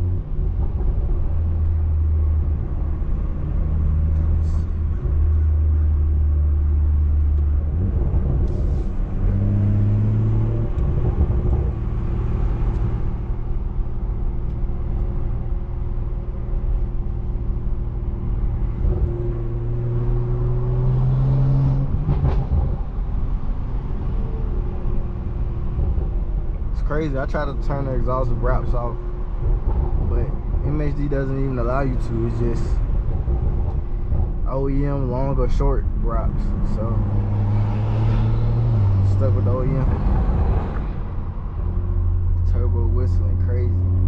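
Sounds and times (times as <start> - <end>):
car engine accelerating through gears: 0.0 - 26.8, 36.2 - 44.0.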